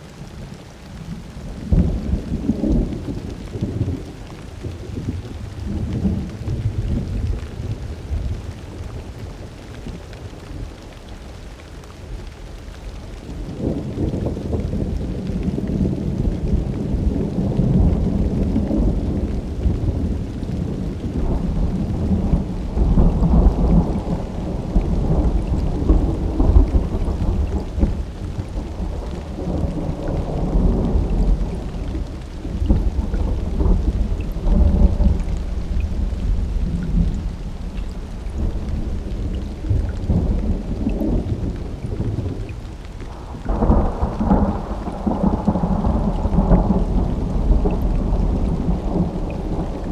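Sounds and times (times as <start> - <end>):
steady rain: 0.0 - 49.9
thunder rumbling: 1.5 - 10.0, 13.2 - 49.9.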